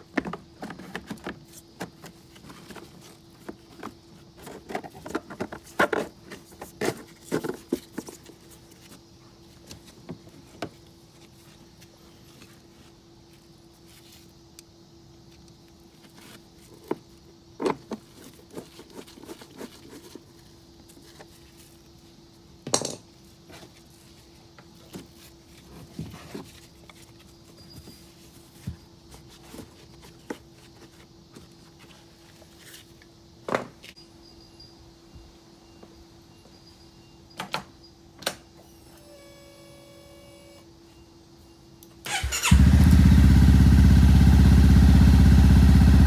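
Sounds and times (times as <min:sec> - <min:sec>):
tools and parts clattering: 0:22.6 - 0:23.7.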